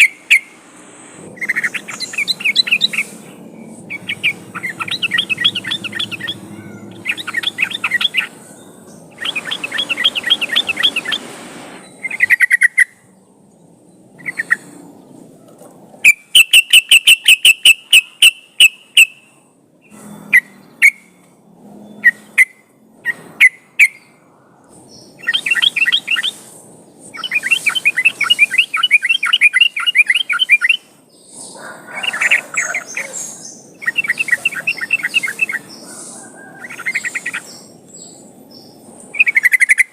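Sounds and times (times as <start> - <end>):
sharp evenly spaced bird notes: 0.0 - 15.4, 16.0 - 39.9
bulbuls bubbling chattering song: 1.2 - 11.3, 24.7 - 39.9.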